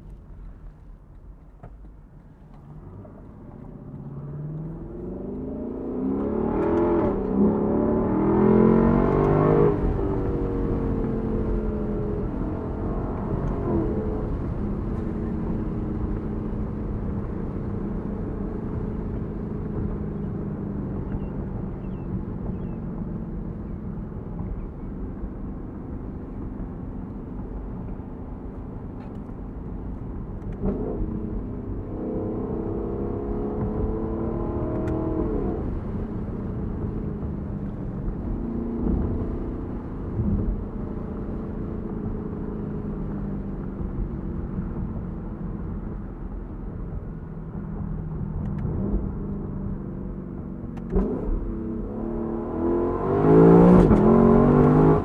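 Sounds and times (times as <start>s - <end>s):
car engine revving while cruising: 1.4s - 55.0s.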